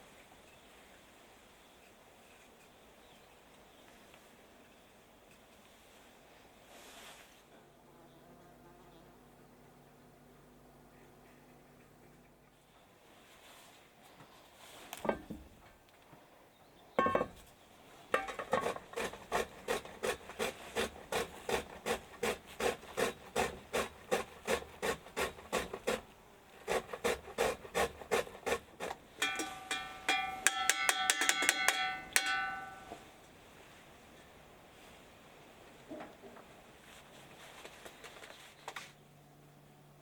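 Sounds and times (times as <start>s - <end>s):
rasping scraping strokes: 18.2s - 33.0s.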